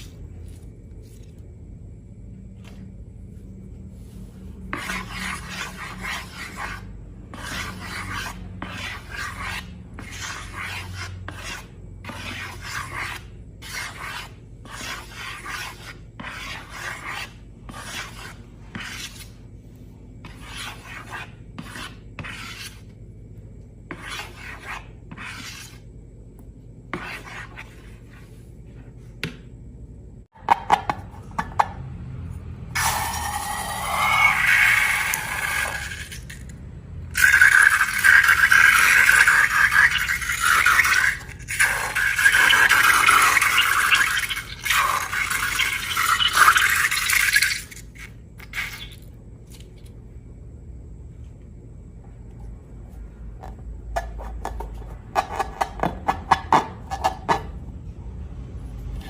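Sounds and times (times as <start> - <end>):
rasping scrape strokes: 4.0 - 19.4, 20.2 - 22.9, 23.9 - 25.9, 32.8 - 36.4.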